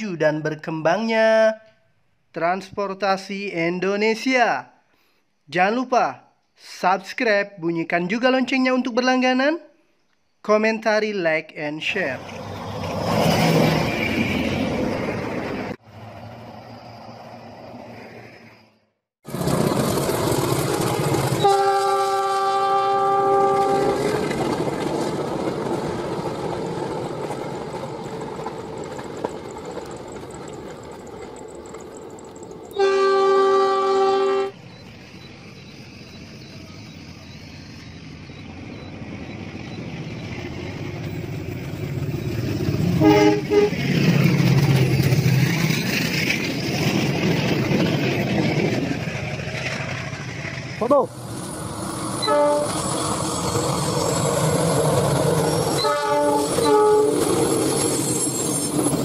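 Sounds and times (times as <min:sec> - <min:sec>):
passenger train rumbling: 0:11.8 - 0:59.0
diesel locomotive horn: 0:21.4 - 0:24.3, 0:32.8 - 0:34.6, 0:43.0 - 0:43.8, 0:52.2 - 0:52.8, 0:55.7 - 0:57.3.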